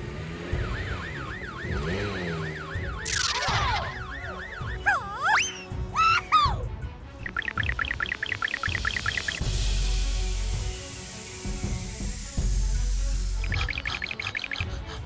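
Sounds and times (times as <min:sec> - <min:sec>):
fire truck siren yelping: 0:00.6 - 0:06.5.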